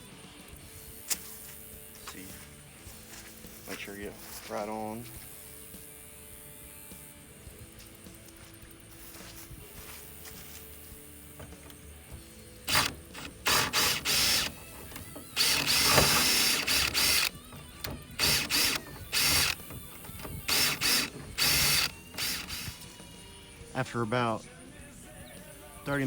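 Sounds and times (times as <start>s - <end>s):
power tool bursts: 11.0s - 23.0s.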